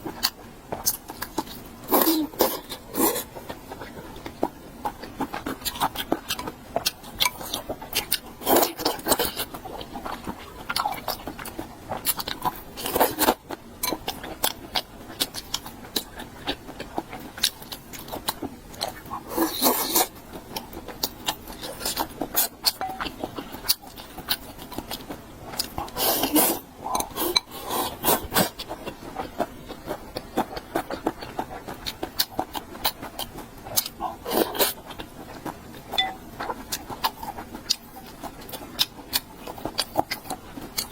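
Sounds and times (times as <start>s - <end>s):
chewing and crunching food: 0.0s - 40.9s.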